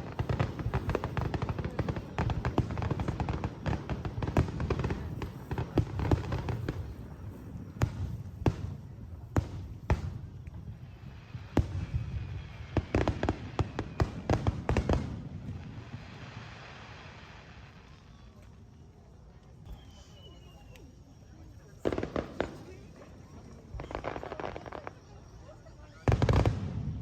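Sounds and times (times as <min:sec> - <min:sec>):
fireworks bangs and crackles: 0:00.0 - 0:27.0.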